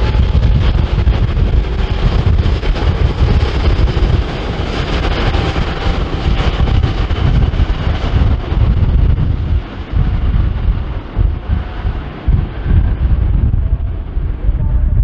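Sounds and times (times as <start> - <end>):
jet engine roar: 0.0 - 15.0
wind buffeting microphone: 0.0 - 15.0.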